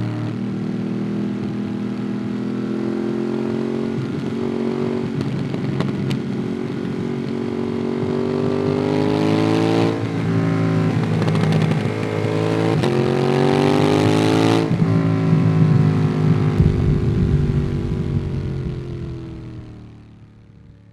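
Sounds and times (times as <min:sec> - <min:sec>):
motorcycle engine accelerating: 0:00.0 - 0:20.9
low rumble: 0:16.5 - 0:20.9.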